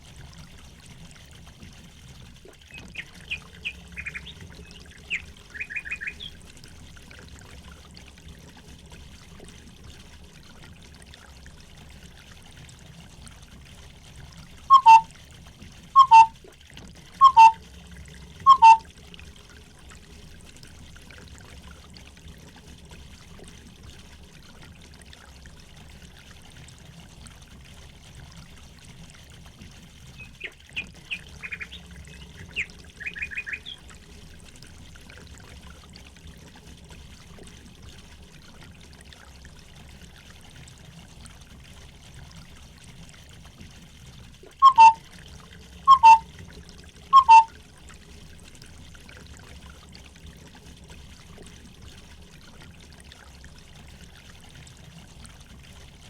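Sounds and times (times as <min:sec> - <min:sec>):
water trickling: 0:00.0 - 0:56.0
high quick bird chirps: 0:02.7 - 0:06.3, 0:14.7 - 0:15.0, 0:16.0 - 0:16.3, 0:17.2 - 0:17.6, 0:18.5 - 0:18.8, 0:31.1 - 0:31.8, 0:32.5 - 0:33.8, 0:44.6 - 0:45.0, 0:45.9 - 0:46.2, 0:47.2 - 0:47.5
downward-sliding bird calls: 0:02.8 - 0:06.3, 0:14.7 - 0:15.0, 0:16.0 - 0:16.3, 0:17.2 - 0:17.6, 0:18.5 - 0:18.8, 0:30.2 - 0:33.8, 0:44.6 - 0:45.0, 0:45.9 - 0:46.2, 0:47.2 - 0:47.5.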